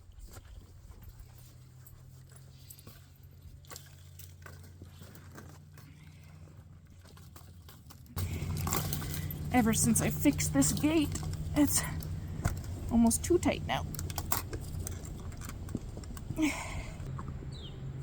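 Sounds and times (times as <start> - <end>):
metal gate and latch rattling: 7.2 - 16.3
steady low hum: 8.1 - 18.0.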